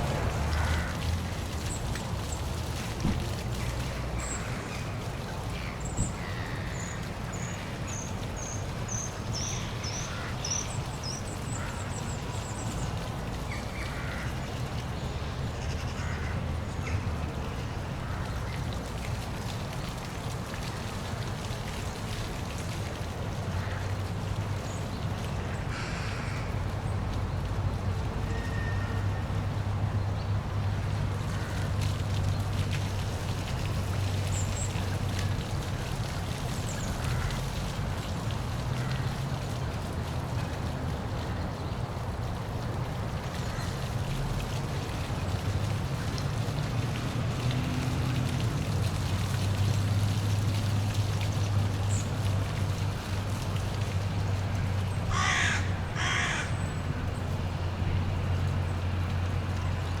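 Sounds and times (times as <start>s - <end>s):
waterfall rushing: 0.0s - 4.9s, 31.0s - 58.2s.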